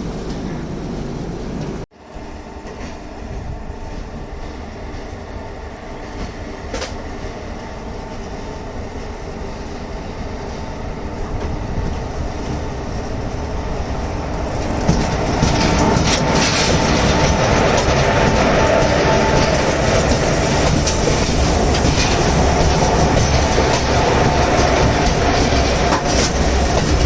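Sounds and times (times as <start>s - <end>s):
electric locomotive humming: 0.0s - 27.0s
wheels clattering over rail joints: 11.2s - 27.0s.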